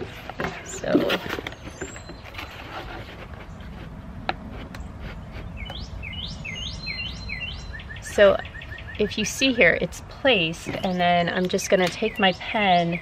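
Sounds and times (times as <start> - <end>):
songbird chirping: 4.7 - 13.0.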